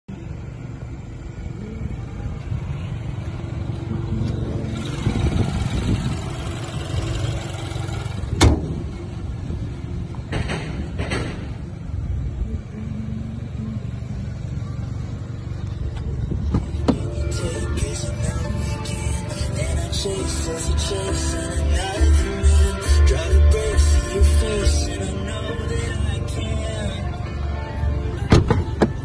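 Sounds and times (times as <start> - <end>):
car engine idling: 0.1 - 29.0.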